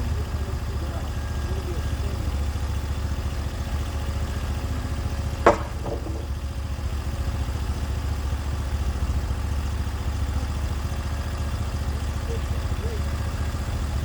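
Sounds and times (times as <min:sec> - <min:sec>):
sawmill engine idling: 0:00.0 - 0:14.0
sharp clack: 0:05.5 - 0:06.4.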